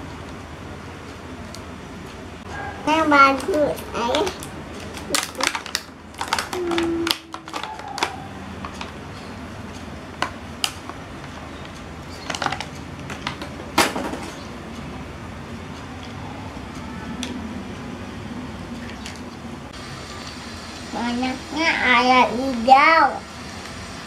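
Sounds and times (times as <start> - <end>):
plastic toy parts clattering: 3.4 - 8.9, 12.2 - 14.4.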